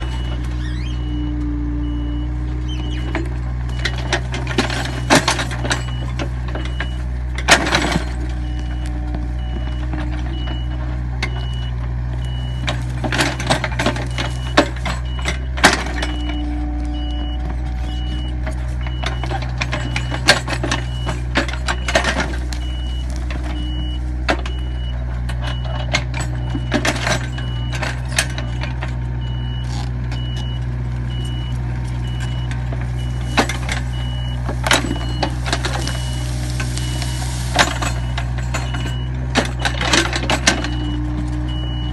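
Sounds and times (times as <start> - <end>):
excavator engine running: 0.0 - 41.9
warning alarm beeping: 29.3 - 39.8.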